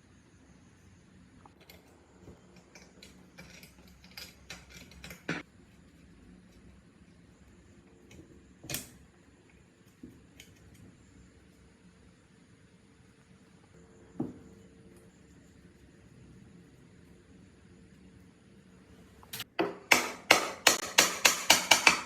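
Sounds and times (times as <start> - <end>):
hand tools clicking and knocking: 2.5 - 5.4, 19.4 - 22.0.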